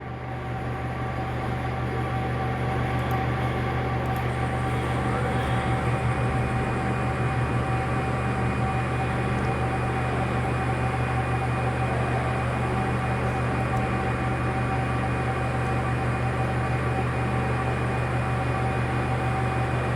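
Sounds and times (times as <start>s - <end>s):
machine humming and whining: 0.0s - 19.9s
motor spinning up whine: 4.0s - 15.3s.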